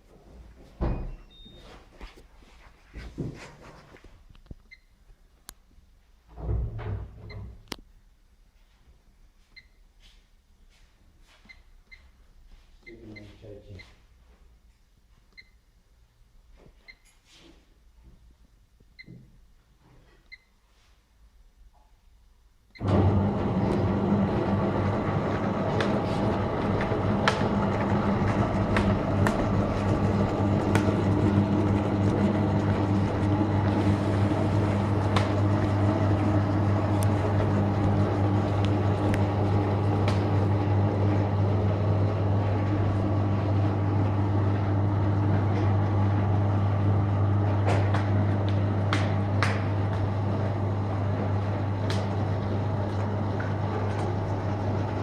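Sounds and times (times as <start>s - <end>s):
motor hum: 22.8s - 55.0s.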